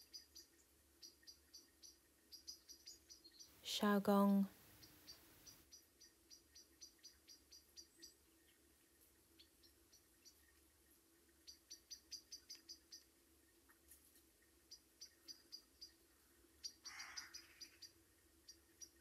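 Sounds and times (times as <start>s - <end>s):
soft rustle: 13.5s - 14.5s.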